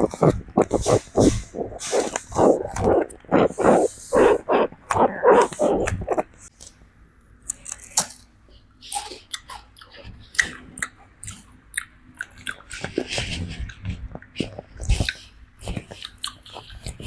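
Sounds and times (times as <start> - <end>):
monkey vocal sound: 0.0 - 6.4.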